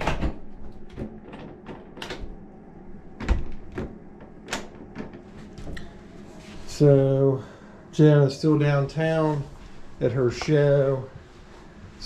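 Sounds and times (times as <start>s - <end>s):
door knocks and clicks: 0.0s - 2.4s.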